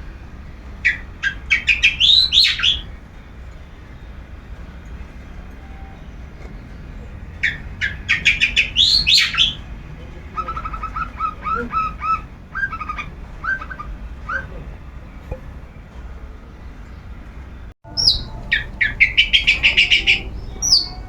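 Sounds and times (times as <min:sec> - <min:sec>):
bird chattering phrases: 0:00.9 - 0:02.9, 0:07.4 - 0:14.9, 0:17.9 - 0:21.0
bird singing sharp notes: 0:17.9 - 0:21.0.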